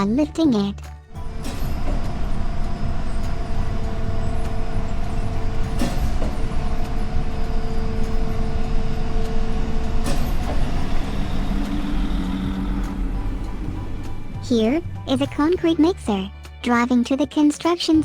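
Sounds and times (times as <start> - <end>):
diesel engine rumbling: 0.0 - 16.3
hydraulic whine: 1.1 - 15.1
sharp metal clank: 1.3 - 2.1, 5.6 - 6.7.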